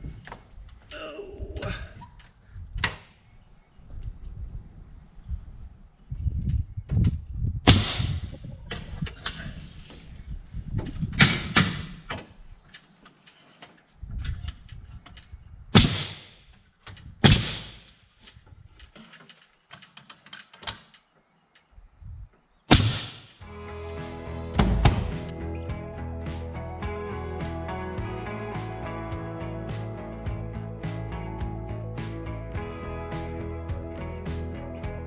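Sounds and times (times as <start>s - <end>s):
low rumble: 23.4s - 35.0s.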